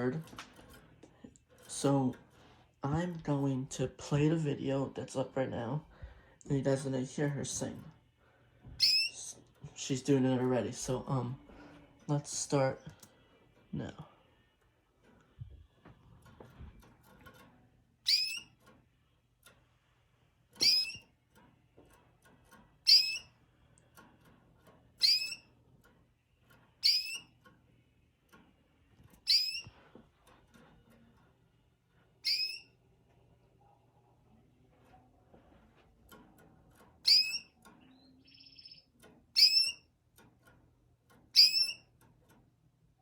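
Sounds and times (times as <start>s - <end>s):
bird high-pitched calls: 8.8s - 9.2s, 18.1s - 18.5s, 20.6s - 21.0s, 22.8s - 23.3s, 25.0s - 25.4s, 26.8s - 27.3s, 29.2s - 29.7s, 32.2s - 32.7s, 37.0s - 39.9s, 41.3s - 41.9s.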